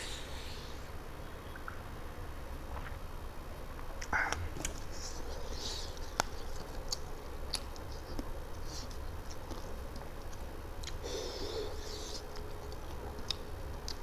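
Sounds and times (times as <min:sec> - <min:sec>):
man chewing food: 0:04.0 - 0:14.0.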